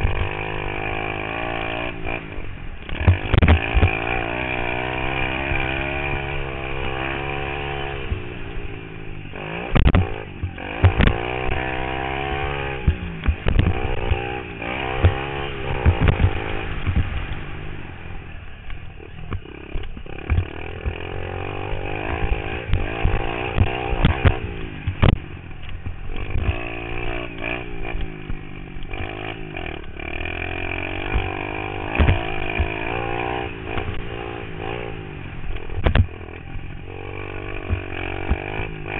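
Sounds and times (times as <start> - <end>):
pit bike engine revving: 0.0 - 38.9
sharp knocks and thuds: 2.9 - 4.0, 9.7 - 11.3, 12.8 - 14.3, 15.0 - 17.3, 19.3 - 21.0, 22.6 - 26.6, 31.1 - 32.8, 35.8 - 36.2.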